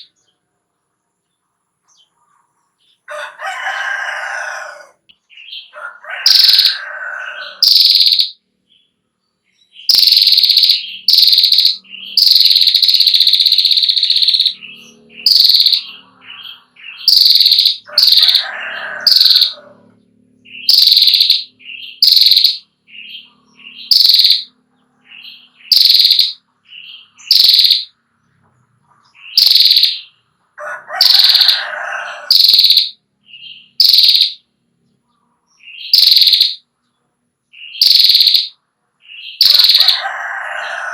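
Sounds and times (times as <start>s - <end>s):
lower-pitched bird call: 3.1s - 8.4s, 9.8s - 28.0s, 29.1s - 34.5s, 35.6s - 36.6s, 37.6s - 40.9s
bird trilling call: 4.3s - 8.4s, 9.8s - 28.0s, 29.0s - 34.5s, 35.6s - 36.6s, 37.6s - 40.9s.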